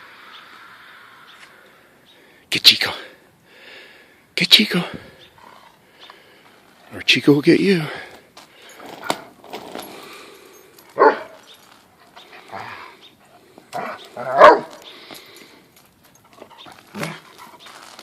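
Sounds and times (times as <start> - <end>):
dog barking: 11.0 - 11.4, 13.8 - 14.8.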